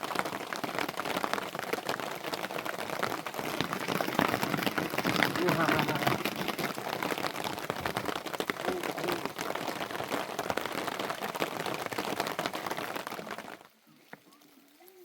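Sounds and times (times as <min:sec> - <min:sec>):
rain pattering on surfaces: 0:00.0 - 0:15.0.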